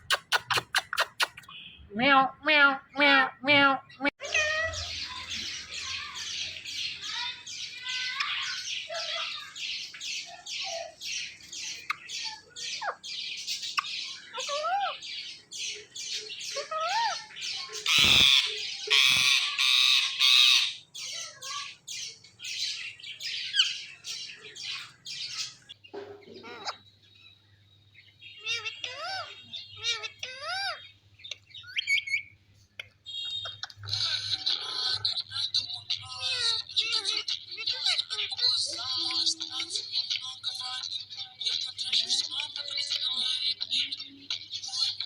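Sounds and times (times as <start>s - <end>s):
parrot screeching: 14.1s - 15.0s, 16.4s - 21.8s, 28.4s - 30.8s.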